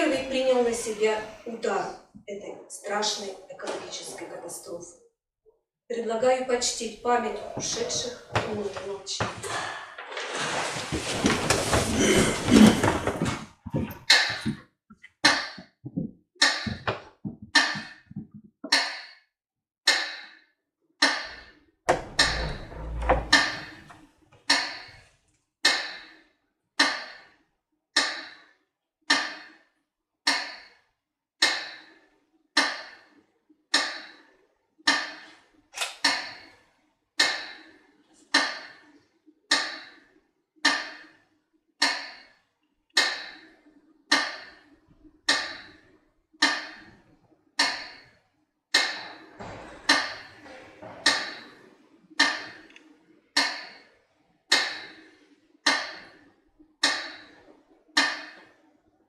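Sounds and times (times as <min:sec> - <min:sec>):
rustling: 0:06.6 - 0:13.9.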